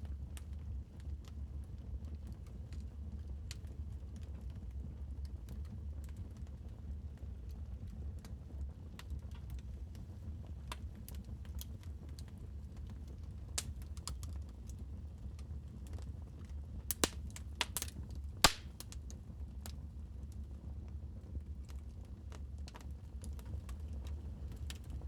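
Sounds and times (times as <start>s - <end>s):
wood fire crackling: 7.0s - 20.4s, 21.5s - 25.0s.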